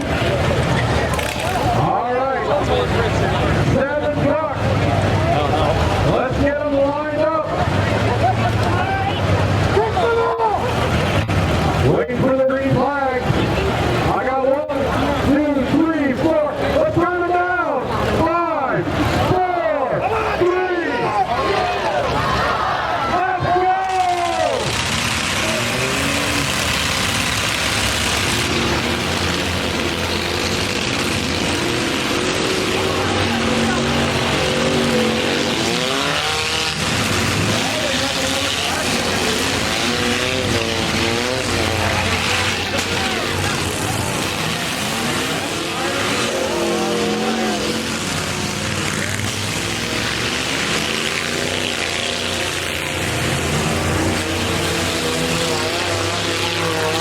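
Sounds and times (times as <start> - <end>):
truck engines running: 0.0 - 57.0.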